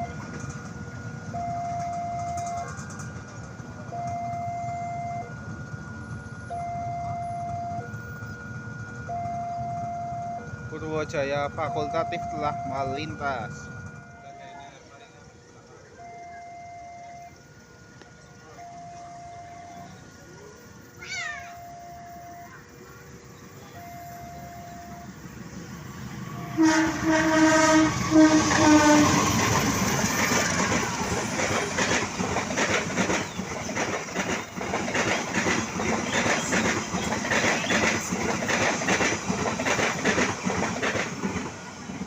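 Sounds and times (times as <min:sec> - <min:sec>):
train wheels clattering over rails: 0:00.0 - 0:04.3, 0:24.7 - 0:42.0
train horn blasts: 0:26.4 - 0:30.2.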